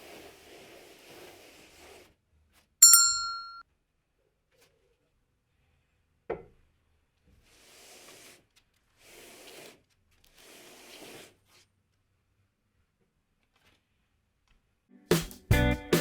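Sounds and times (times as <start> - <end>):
rubbing across wooden surface: 0.0 - 2.7, 7.4 - 11.7.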